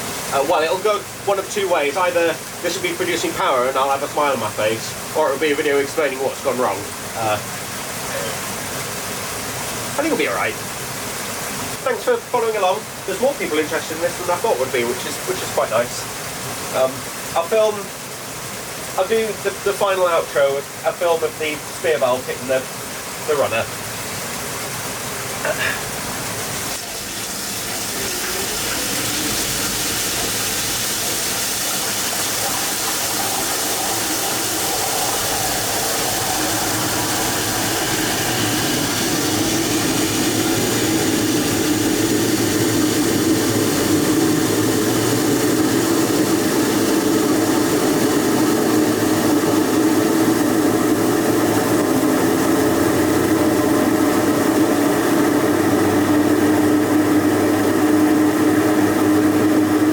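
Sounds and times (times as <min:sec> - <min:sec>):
water jet spray rushing: 0:00.0 - 0:59.9
turbine hum: 0:26.7 - 0:59.9.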